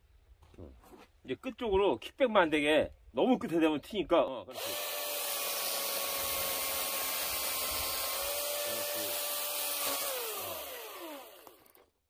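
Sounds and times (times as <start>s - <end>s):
electric chainsaw cutting wood: 4.5s - 12.0s.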